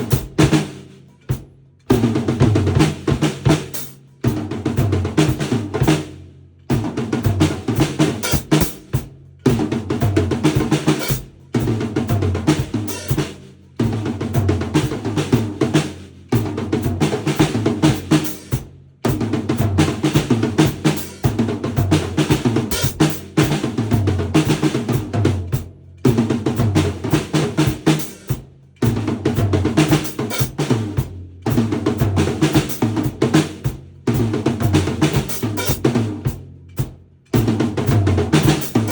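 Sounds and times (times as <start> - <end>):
drum kit playing: 0.0 - 38.9.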